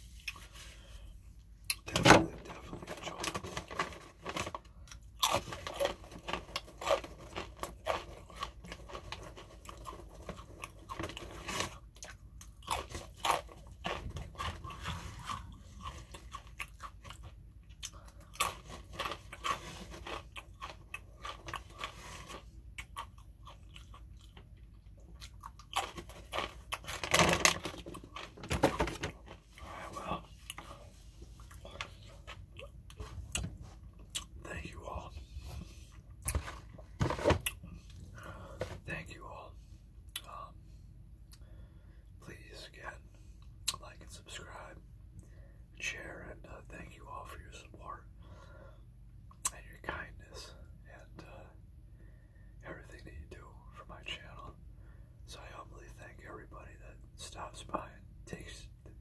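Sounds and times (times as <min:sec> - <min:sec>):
person chewing crunchy food: 0:02.5 - 0:34.4.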